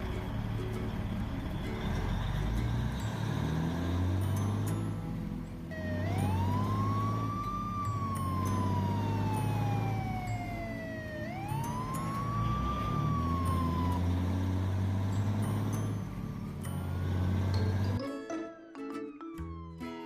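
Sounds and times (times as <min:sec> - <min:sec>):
siren wailing: 0:05.7 - 0:15.7.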